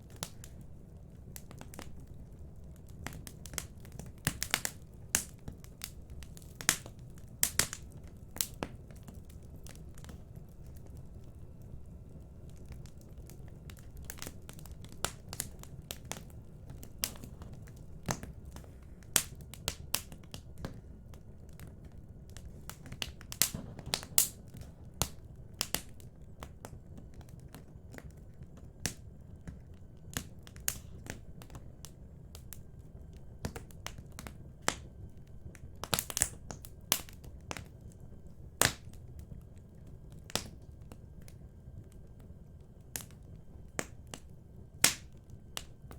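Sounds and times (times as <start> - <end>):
wood fire crackling: 0.0 - 45.9
sharp fire pops: 22.3 - 26.7, 35.8 - 37.7, 38.6 - 39.0, 44.8 - 45.1.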